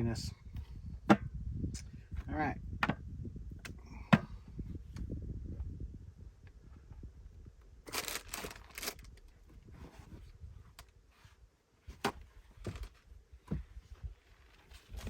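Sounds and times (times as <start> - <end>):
packaging crinkling: 7.9 - 9.2.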